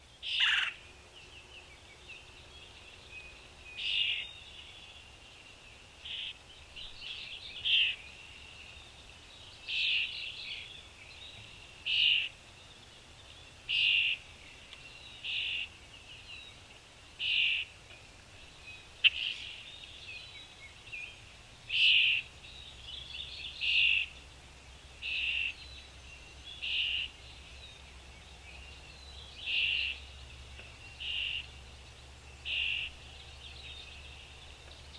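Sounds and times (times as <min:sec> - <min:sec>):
birds calling: 0:00.0 - 0:01.5, 0:25.0 - 0:34.9.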